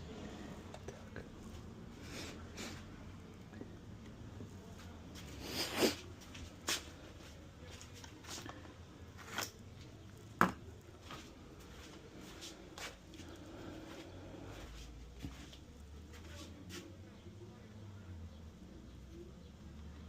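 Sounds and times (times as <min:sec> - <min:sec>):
low steady hum: 0:00.0 - 0:05.3.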